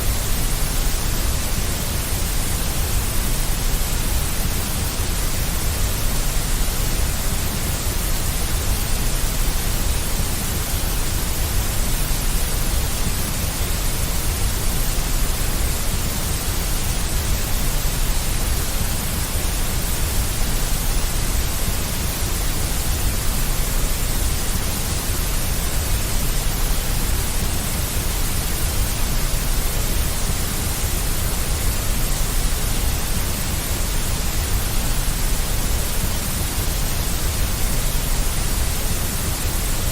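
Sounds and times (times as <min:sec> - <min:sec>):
white noise with low rumble: 0:00.0 - 0:39.9.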